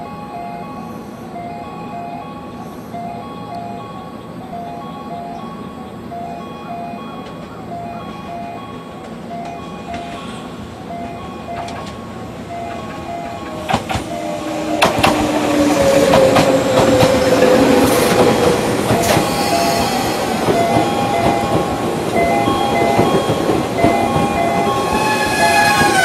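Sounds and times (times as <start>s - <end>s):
wheels clacking over rail joints: 6.7s - 26.0s.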